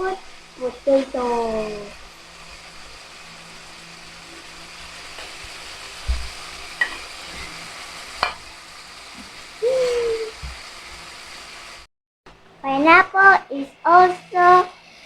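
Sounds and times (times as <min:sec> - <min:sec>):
chicken sizzling in oil: 0:00.0 - 0:11.9, 0:12.6 - 0:15.0
utensil knocking against pan: 0:06.1 - 0:07.0.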